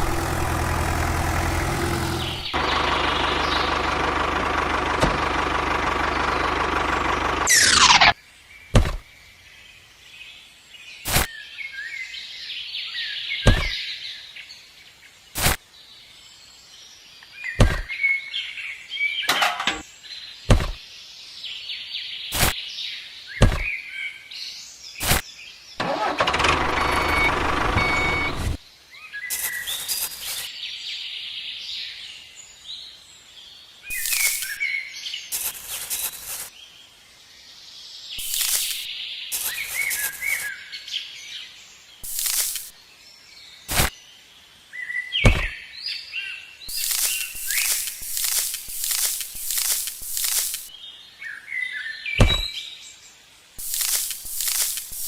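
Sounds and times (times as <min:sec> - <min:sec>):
small birds chirping: 0:00.0 - 0:04.4, 0:26.8 - 0:55.0
rushing motor-like noise: 0:00.0 - 0:08.0, 0:26.1 - 0:28.6
sharp click: 0:33.9 - 0:34.6, 0:38.2 - 0:40.1, 0:42.0 - 0:42.7, 0:46.7 - 0:50.7, 0:53.6 - 0:55.0.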